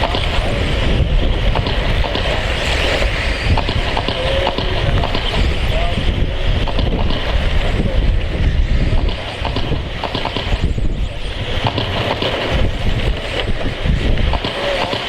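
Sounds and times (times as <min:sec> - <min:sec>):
electric rc trucks whining: 0:00.0 - 0:15.0
wind buffeting microphone: 0:00.0 - 0:15.0.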